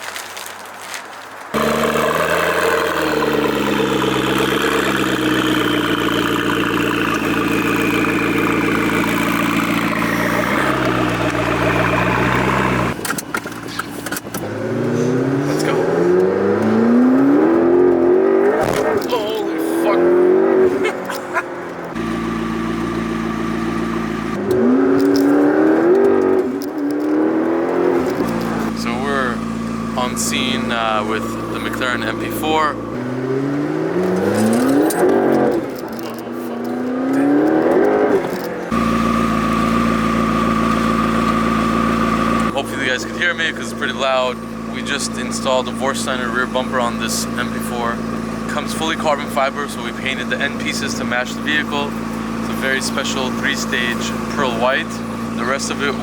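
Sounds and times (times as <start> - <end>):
car engine idling loudly: 1.6 - 15.8, 21.0 - 24.4, 28.1 - 33.0, 38.3 - 56.0.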